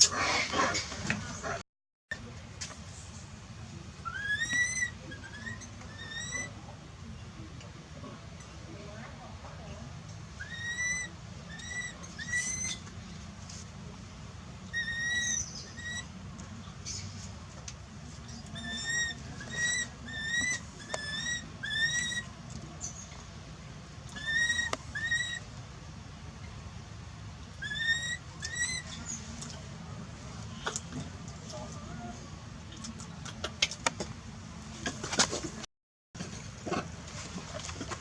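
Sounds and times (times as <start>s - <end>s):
baby monkey crying: 10.4s - 12.7s, 18.6s - 22.2s, 24.2s - 25.4s, 27.6s - 28.8s.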